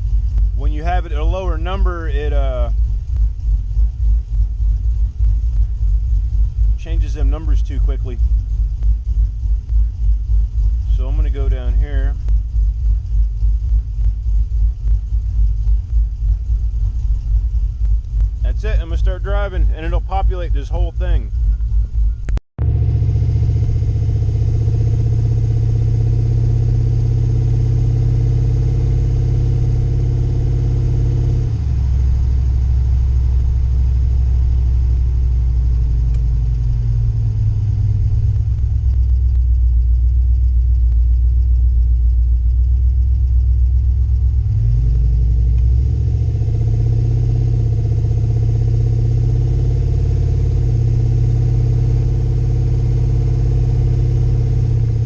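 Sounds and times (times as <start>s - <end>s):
pickup truck engine running: 0.0s - 55.0s.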